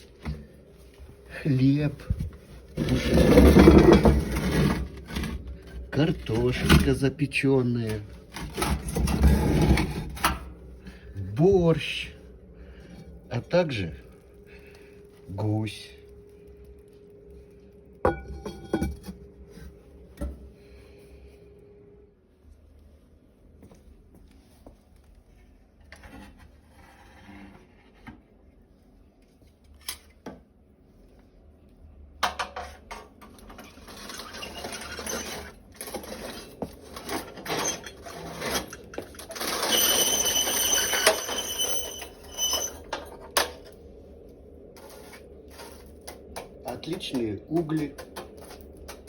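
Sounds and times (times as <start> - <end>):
metal tool scraping coals: 2.6 - 7.0, 7.8 - 10.4, 33.6 - 43.8, 44.8 - 49.0
high metallic squeal: 34.0 - 35.5, 37.0 - 43.1.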